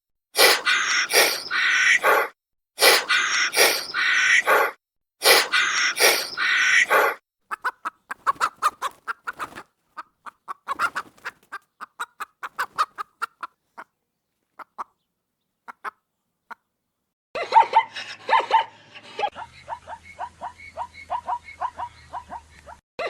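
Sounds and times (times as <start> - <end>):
chicken squawking: 0.4 - 13.9, 14.6 - 15.0, 15.7 - 16.7
chicken clucking: 5.4 - 14.0, 14.6 - 16.7.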